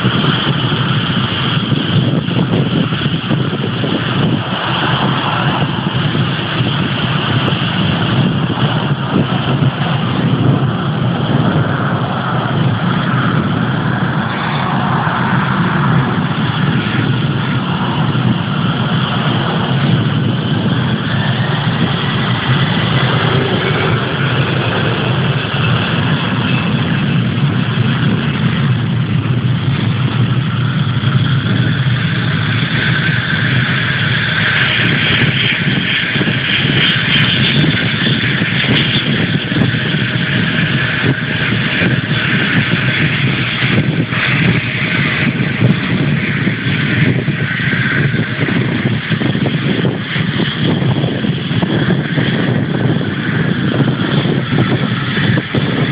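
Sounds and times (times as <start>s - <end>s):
jet engines running: 0.0s - 55.9s
faint rising whine: 3.1s - 34.7s.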